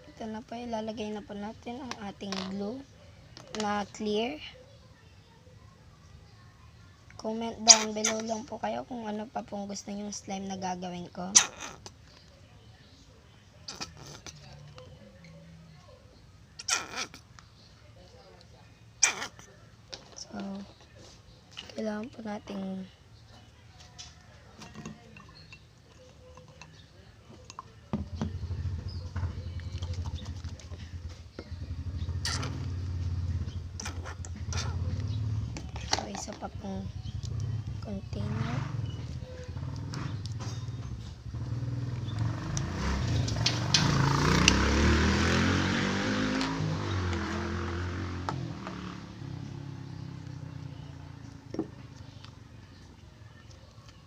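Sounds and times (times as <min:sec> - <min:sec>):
containers and utensils clinking: 0:24.6 - 0:28.2
vehicle engine passing by: 0:28.0 - 0:36.0, 0:36.6 - 0:52.9.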